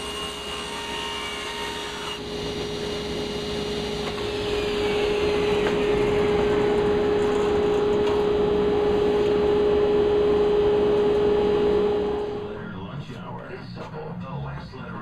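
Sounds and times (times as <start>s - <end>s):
power saw running: 0.0s - 12.6s
motor whine winding down: 1.2s - 12.7s
dust extractor running: 2.0s - 12.6s
steady hum: 2.2s - 13.1s.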